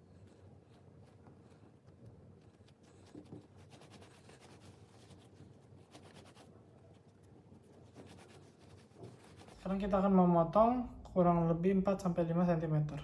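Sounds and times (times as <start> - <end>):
hands folding dough: 0.0 - 10.0.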